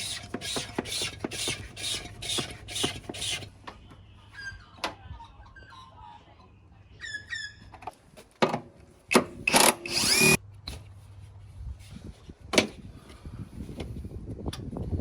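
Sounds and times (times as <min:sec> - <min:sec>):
power drill whining: 0:09.5 - 0:10.4.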